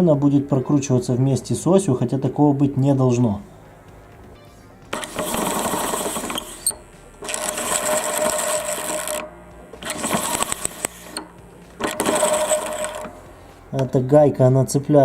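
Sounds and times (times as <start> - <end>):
metal rubbing on metal: 4.9 - 13.8
electric motor and gearbox whining: 4.9 - 14.4.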